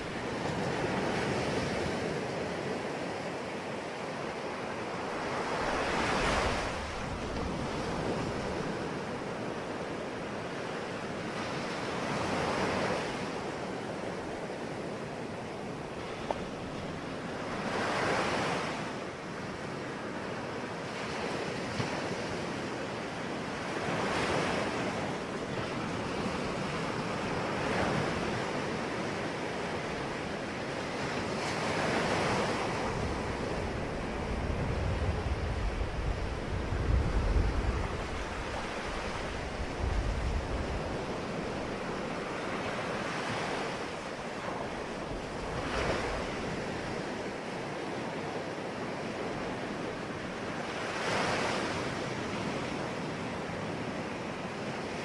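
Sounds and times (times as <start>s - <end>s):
sea waves breaking on shore: 0.0s - 55.0s
low wind rumble on microphone: 23.5s - 47.5s.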